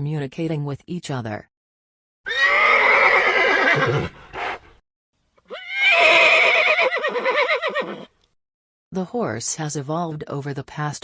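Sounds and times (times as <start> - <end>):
horse whinnying: 2.2 - 4.6, 5.5 - 8.2.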